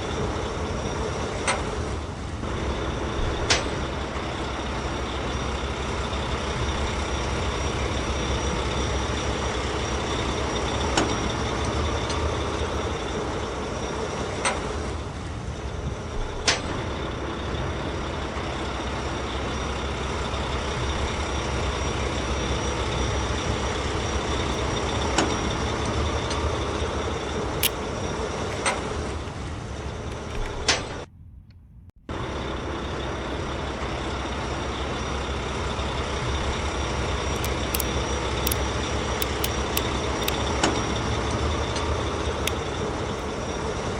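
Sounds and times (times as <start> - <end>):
truck engine rumbling: 0.0 - 43.9
sharp clicks: 27.6 - 27.8, 37.4 - 40.5, 42.5 - 43.3.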